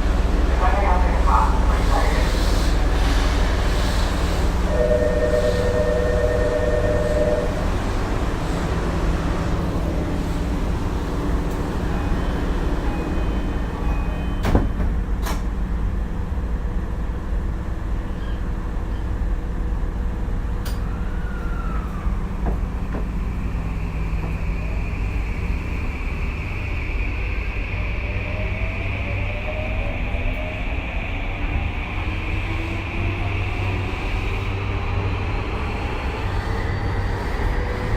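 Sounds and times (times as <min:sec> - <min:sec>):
train wheels rumbling on rail: 0:00.0 - 0:37.9
train motor whine: 0:03.7 - 0:08.0.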